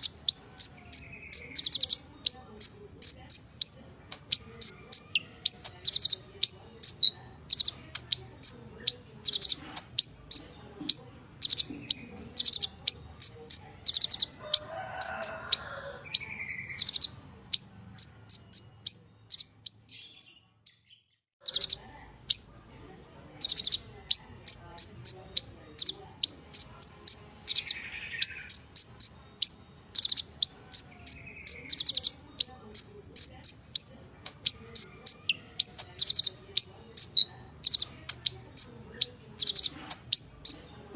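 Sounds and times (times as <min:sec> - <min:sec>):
sunbird singing high chips: 0:23.4 - 0:40.7.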